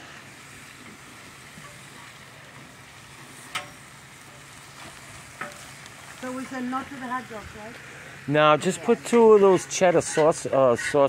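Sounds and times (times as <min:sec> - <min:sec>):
meat sizzling on griddle: 0:00.0 - 0:11.0
spatula clicking on griddle: 0:03.4 - 0:03.8, 0:05.4 - 0:06.0.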